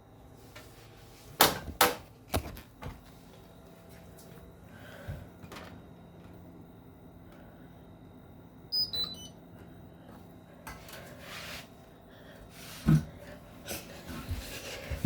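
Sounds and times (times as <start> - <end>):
washing machine beeps: 3.7 - 10.1.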